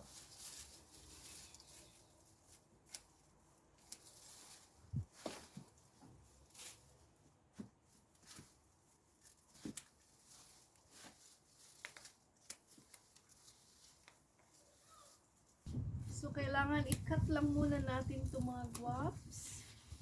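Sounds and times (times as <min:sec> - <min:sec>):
faint handling rustles and clicks: 0:00.0 - 0:15.7.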